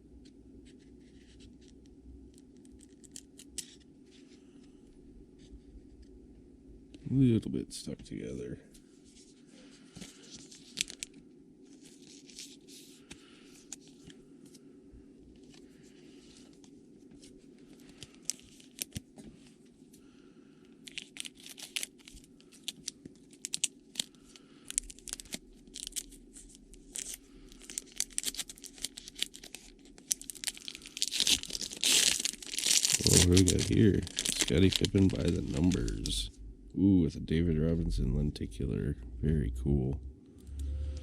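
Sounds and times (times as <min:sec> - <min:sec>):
steady low hum: 0:00.0 - 0:41.0
wrapper crinkling: 0:10.1 - 0:11.2, 0:17.7 - 0:19.0, 0:20.8 - 0:36.3
pack wrapper tearing: 0:10.4 - 0:11.1, 0:18.0 - 0:19.0, 0:20.8 - 0:36.2.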